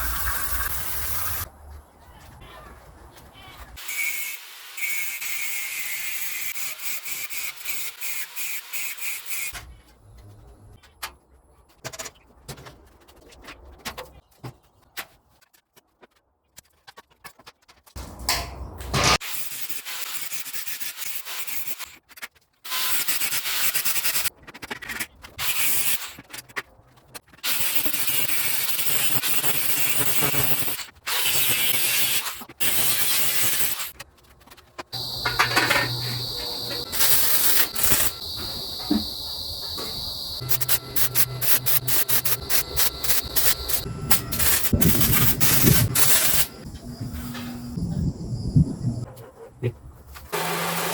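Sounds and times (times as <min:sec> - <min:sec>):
rough abrasive tool noise: 0:03.8 - 0:09.5, 0:35.0 - 0:47.7, 0:50.3 - 0:50.9
electric tool motor whining: 0:35.0 - 0:46.4, 0:50.4 - 0:50.9.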